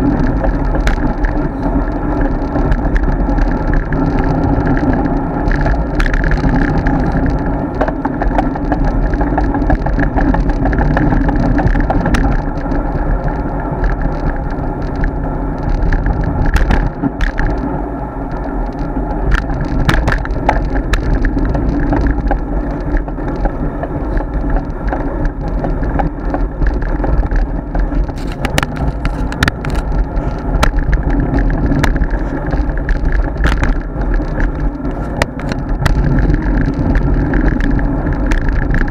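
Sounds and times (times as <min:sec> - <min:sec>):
bike clicks and rattles: 0:00.0 - 0:38.9
road rumble: 0:00.0 - 0:38.9
wind noise: 0:00.0 - 0:38.9.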